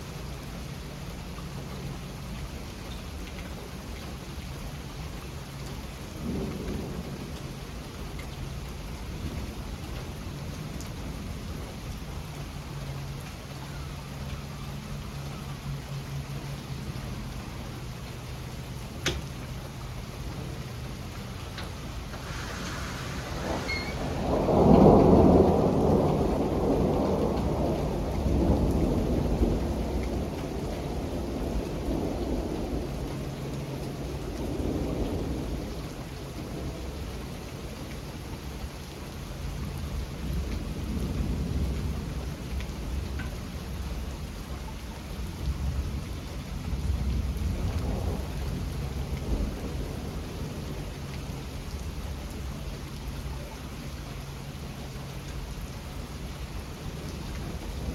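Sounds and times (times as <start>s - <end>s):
steady rain: 0.0s - 57.9s
thunder rumbling: 6.0s - 12.4s, 18.8s - 38.6s, 39.4s - 44.5s, 45.2s - 53.9s, 54.5s - 57.9s.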